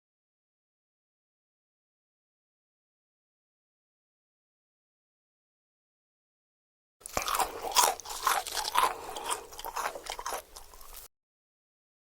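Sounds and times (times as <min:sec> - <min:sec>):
crunchy chewing and biting: 0:07.0 - 0:11.1.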